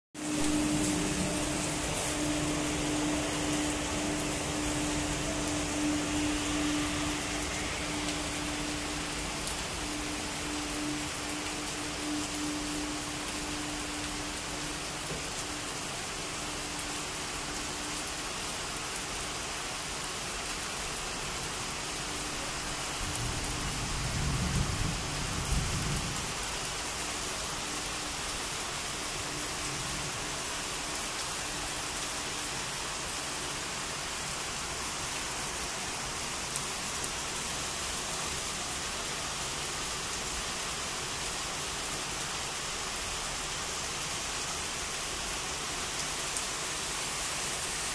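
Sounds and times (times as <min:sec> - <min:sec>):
faint steady hum: 0:00.2 - 0:37.0
heavy rain pouring: 0:00.2 - 0:47.9
low thunder rumble: 0:23.0 - 0:26.6.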